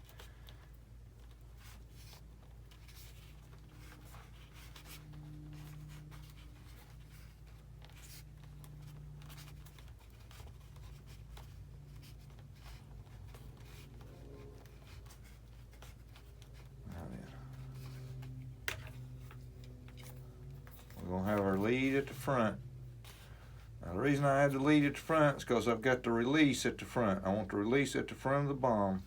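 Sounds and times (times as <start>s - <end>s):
hands scratching and clicking parts: 0.0s - 22.2s
steady low hum: 0.0s - 29.0s.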